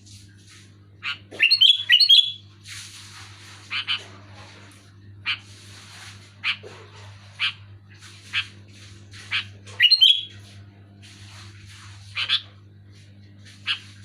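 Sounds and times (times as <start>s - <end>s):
steady low hum: 0.0s - 14.0s
bulbul calling: 1.0s - 2.4s, 9.3s - 10.3s.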